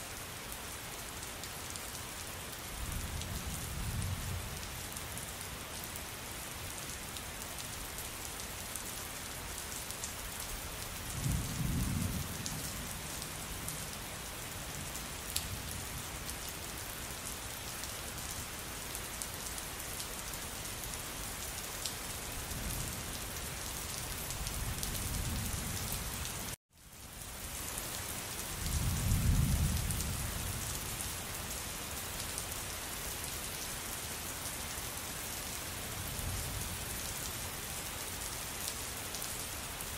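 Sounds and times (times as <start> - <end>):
heavy rain falling: 0.2 - 39.9.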